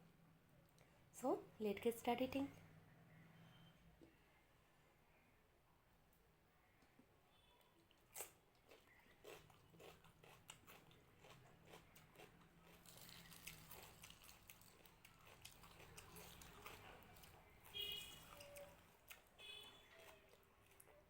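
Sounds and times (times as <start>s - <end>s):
chewing and mouth smacks: 7.8s - 17.5s, 18.2s - 19.3s.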